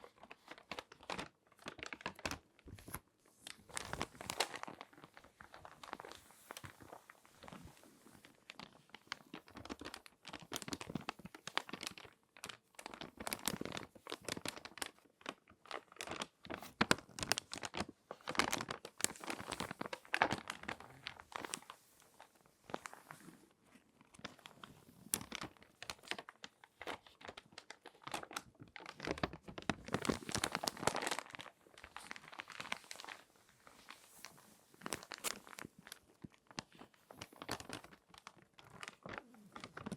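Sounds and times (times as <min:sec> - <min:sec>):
paper crinkling: 0:00.2 - 0:39.9.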